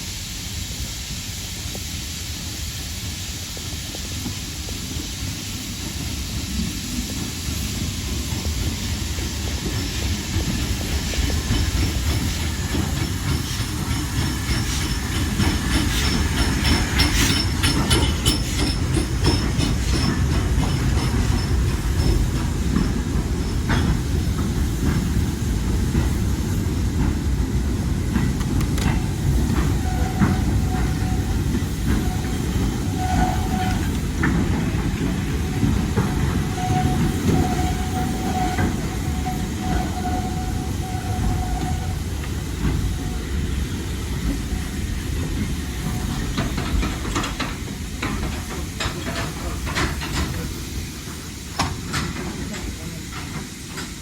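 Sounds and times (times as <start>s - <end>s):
steam locomotive rumbling: 0.0s - 54.0s
wheels clacking over rail joints: 8.3s - 54.0s
wheel squeals: 29.6s - 34.4s, 35.4s - 43.5s.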